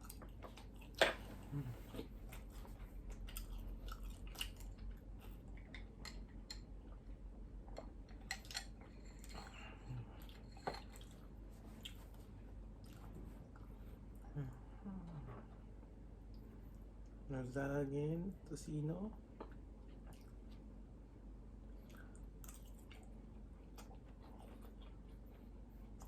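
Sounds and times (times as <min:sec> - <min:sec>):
close chewing: 0:00.0 - 0:06.2, 0:08.4 - 0:13.8, 0:21.8 - 0:26.0.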